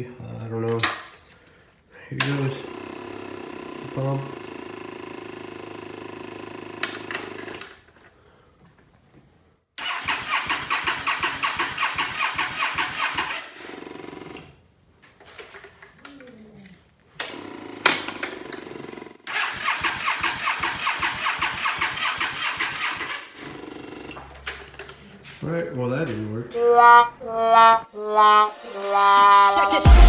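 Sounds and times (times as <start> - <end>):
motorcycle starter cranking engine: 2.2 - 7.9, 9.8 - 14.6, 17.2 - 25.1.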